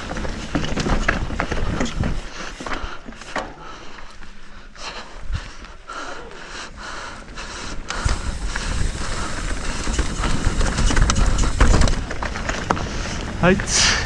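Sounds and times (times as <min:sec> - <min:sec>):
bike rattling on rocks: 0:00.0 - 0:04.1, 0:07.2 - 0:14.0
wind buffeting microphone: 0:07.2 - 0:14.0.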